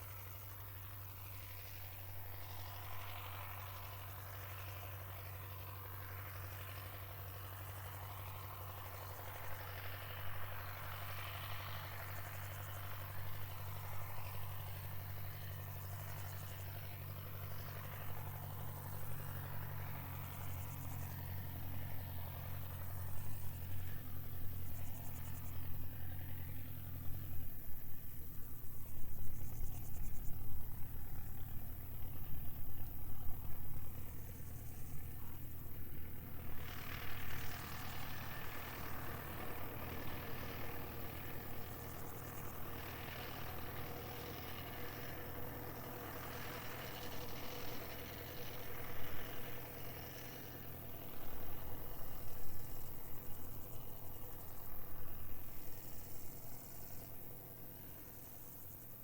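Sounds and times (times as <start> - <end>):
distant engine droning: 0.0 - 59.0
crickets and insects chirring: 6.1 - 59.0.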